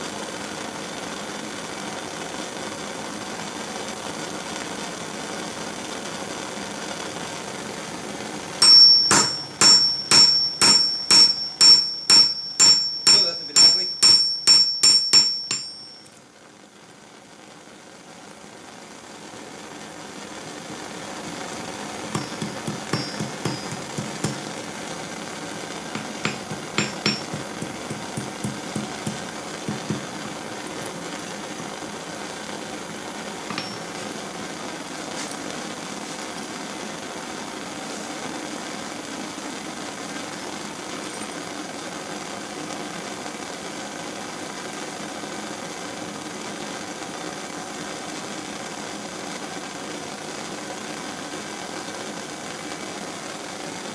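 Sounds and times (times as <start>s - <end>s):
propane torch hissing: 0.0s - 53.9s
hammer ringing on anvil: 8.6s - 16.1s, 22.1s - 24.6s, 25.9s - 31.8s, 33.5s - 34.1s.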